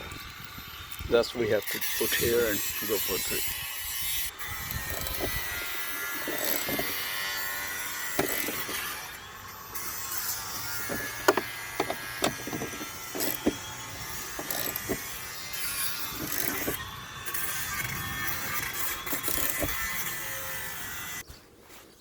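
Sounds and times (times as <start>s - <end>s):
hand tools clicking and knocking: 4.7s - 9.1s, 9.8s - 16.8s, 18.3s - 20.3s.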